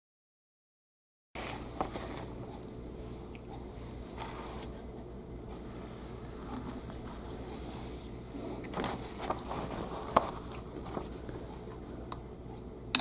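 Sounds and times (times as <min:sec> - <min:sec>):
fabric scraping and rustling: 0:05.5 - 0:11.5.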